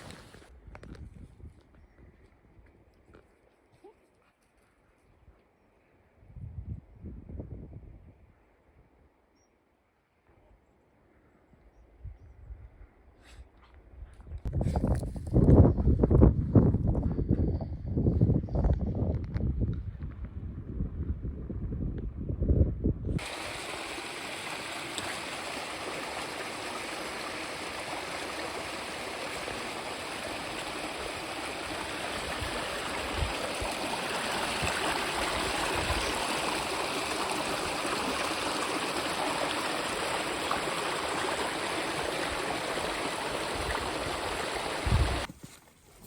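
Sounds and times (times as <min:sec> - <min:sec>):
stream rushing water: 0:23.2 - 0:45.3.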